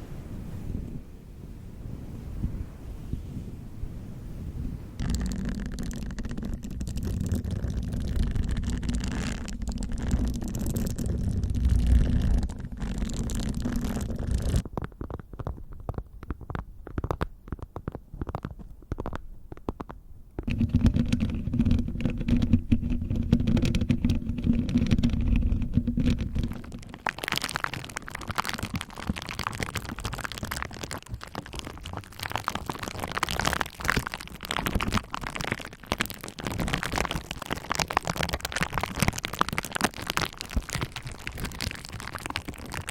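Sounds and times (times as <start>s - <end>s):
muffled rubbing on microphone: 2.1s - 27.2s
bubble wrap popping under roller: 5.0s - 42.9s.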